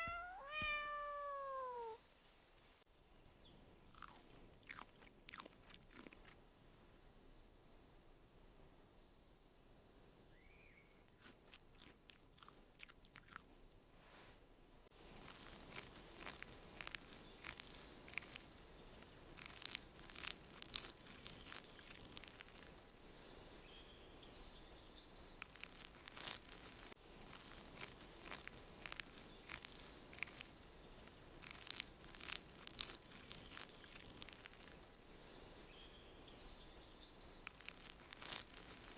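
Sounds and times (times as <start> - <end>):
faint crackling and clicking: 15.1 - 23.0, 25.4 - 35.1, 37.4 - 38.9.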